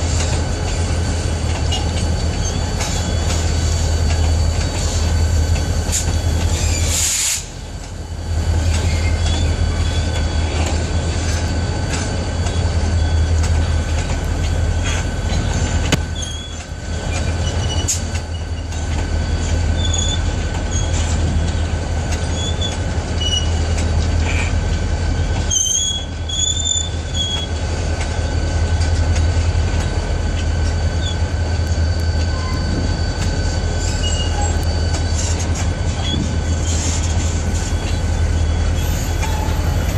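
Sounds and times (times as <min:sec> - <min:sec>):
train wheels rumbling on rail: 0:00.0 - 0:39.9
high wheel squeals: 0:01.6 - 0:07.5, 0:14.8 - 0:21.4, 0:22.2 - 0:24.5, 0:25.4 - 0:28.7, 0:30.5 - 0:39.9.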